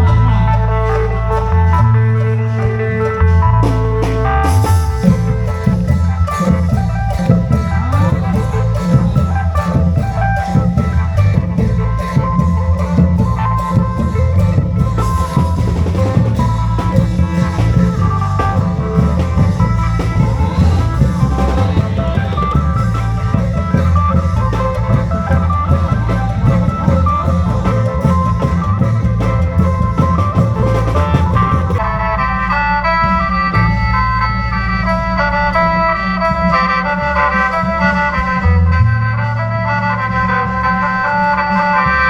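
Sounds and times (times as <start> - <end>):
long drum ensemble rhythm: 0.0 - 32.1
melodic line: 0.0 - 33.8
held organ-like chords: 0.0 - 35.1.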